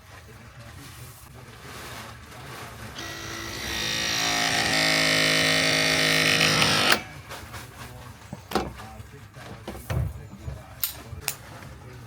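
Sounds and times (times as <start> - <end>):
power tool motor whining: 3.0 - 7.1.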